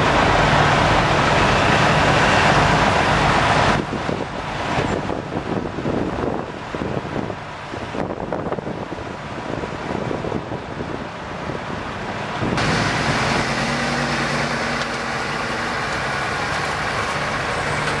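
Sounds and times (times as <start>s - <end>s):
motor vehicle noise: 0.0s - 18.0s
steady engine hum with hiss: 0.0s - 18.0s
wind on microphone: 2.7s - 14.7s.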